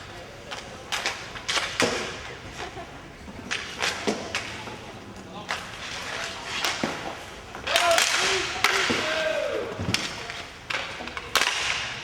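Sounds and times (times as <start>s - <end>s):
hockey sticks and puck clacking: 0.4s - 12.0s
players shouting: 7.6s - 9.8s.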